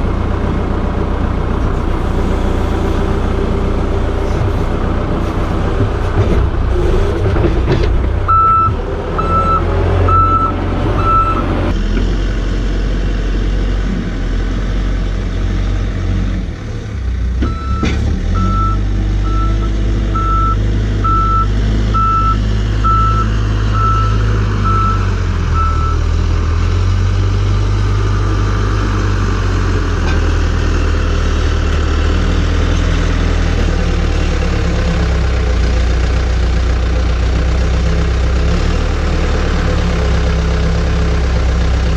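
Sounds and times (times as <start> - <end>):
heavy vehicle engine running: 0.0 - 41.9
reversing alarm beeping: 8.3 - 11.5, 17.5 - 26.0.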